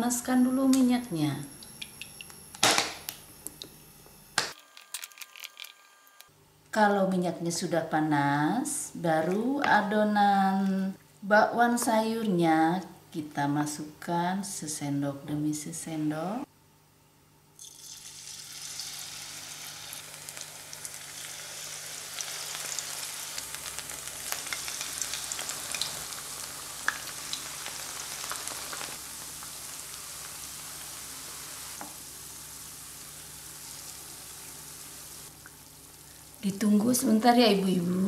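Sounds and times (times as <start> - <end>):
oil popping and crackling: 17.6 - 31.2
batter sizzling in oil: 17.6 - 37.4.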